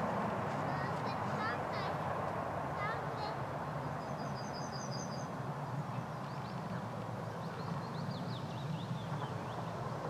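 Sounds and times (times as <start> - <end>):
small birds chirping: 2.8 - 5.3, 5.9 - 9.8.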